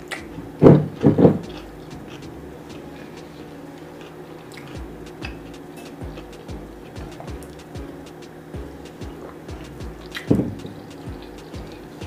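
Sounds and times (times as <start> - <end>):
person chewing food: 4.0 - 6.6.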